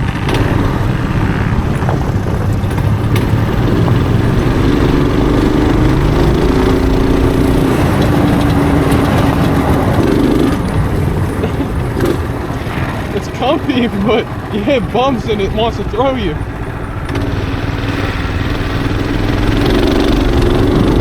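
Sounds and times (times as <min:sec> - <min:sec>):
small vehicle engine running: 0:00.0 - 0:21.0
steady rumble: 0:00.9 - 0:21.0.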